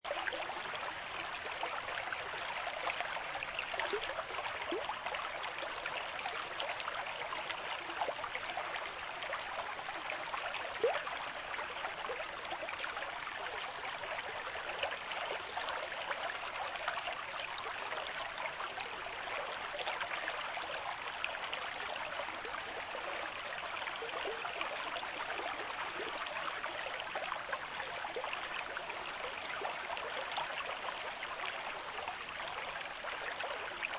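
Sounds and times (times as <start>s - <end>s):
stream flowing over rocks: 0.1s - 33.9s.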